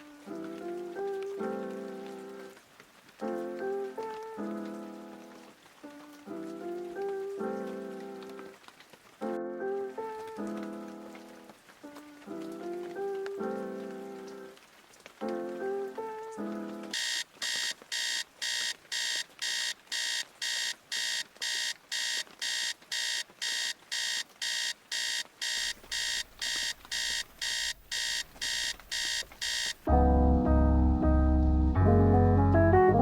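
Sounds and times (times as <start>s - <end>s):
electronic alarm beeping: 17.0s - 29.9s
piano music: 29.9s - 33.0s.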